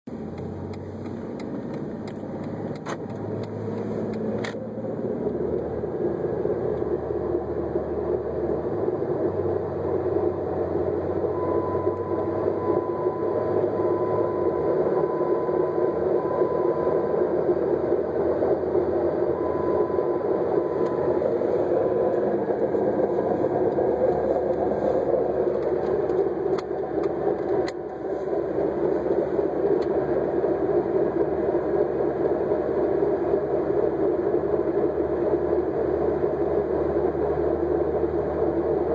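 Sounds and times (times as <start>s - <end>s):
car engine rushing noise: 0.1s - 14.2s, 17.0s - 38.8s
faint high whine: 0.1s - 38.9s
sharp clicks: 0.3s - 4.7s.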